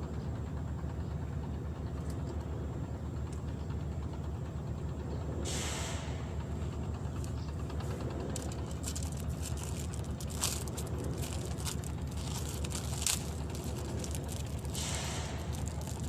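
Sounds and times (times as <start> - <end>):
low rumble: 2.6 - 16.0
clicks and crackles: 8.0 - 16.0.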